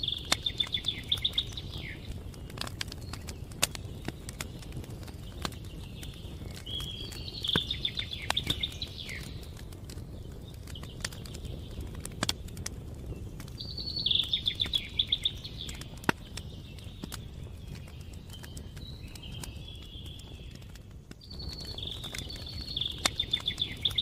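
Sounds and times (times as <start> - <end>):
songbird trilling: 0.0 - 2.1, 6.7 - 9.4, 13.6 - 16.0, 21.4 - 24.0
campfire crackling: 0.0 - 24.0.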